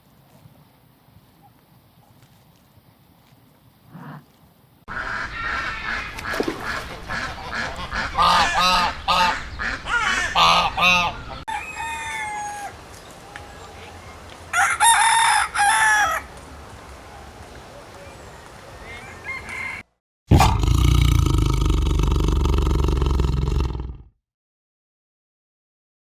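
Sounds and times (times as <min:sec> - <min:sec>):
chickens clucking and squawking: 0:04.9 - 0:14.0
rooster crowing: 0:09.9 - 0:13.6, 0:14.5 - 0:16.4, 0:18.8 - 0:19.9.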